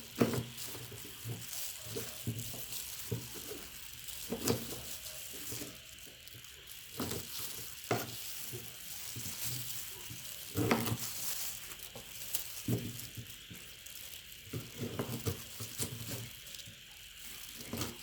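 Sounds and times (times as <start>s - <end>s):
meat grinder squelching banana: 0.0s - 18.0s.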